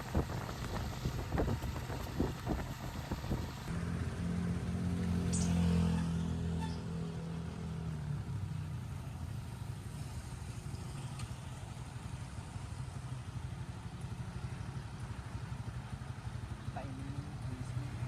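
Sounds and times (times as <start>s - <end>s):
small engine running: 0.0s - 5.8s.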